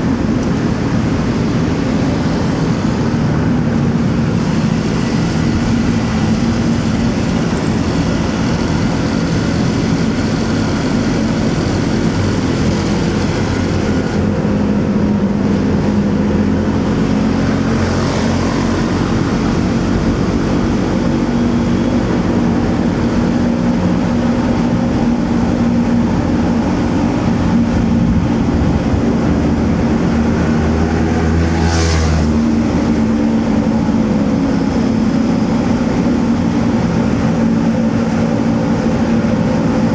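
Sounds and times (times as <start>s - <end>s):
motorcycle engine running: 0.0s - 39.9s
road and traffic noise: 0.0s - 39.9s
vehicle passing close by: 16.2s - 23.4s, 27.2s - 34.0s.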